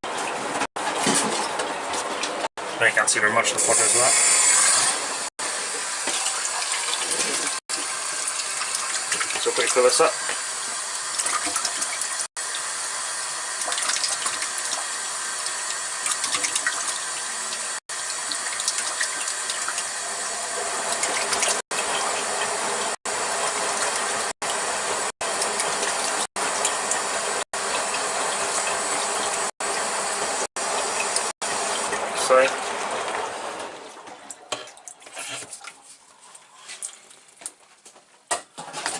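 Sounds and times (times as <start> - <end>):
water running from a tap: 3.4 - 33.2.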